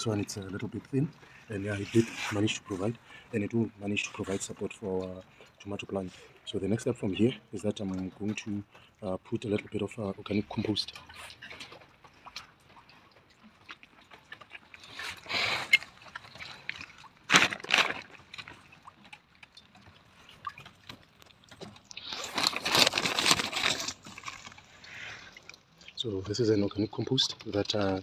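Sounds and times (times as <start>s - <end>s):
compost rustling and crumbling: 14.9s - 18.6s, 22.0s - 25.2s.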